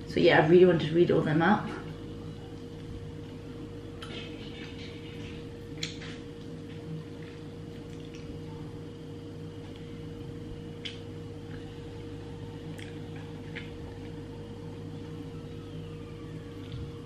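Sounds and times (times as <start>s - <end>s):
steady hum: 0.0s - 17.0s
person chewing: 5.8s - 8.4s, 12.7s - 14.2s.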